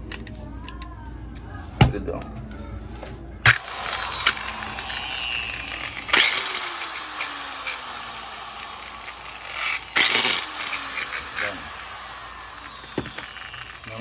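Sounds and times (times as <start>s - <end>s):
angle grinder spinning down: 3.5s - 14.0s.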